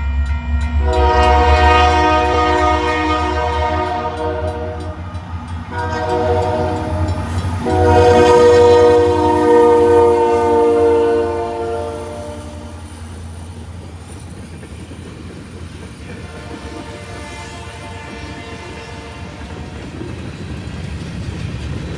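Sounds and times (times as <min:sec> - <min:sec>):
train rumbling: 0:00.0 - 0:21.9
locomotive air horn: 0:00.8 - 0:05.0, 0:05.7 - 0:12.9, 0:16.2 - 0:19.8.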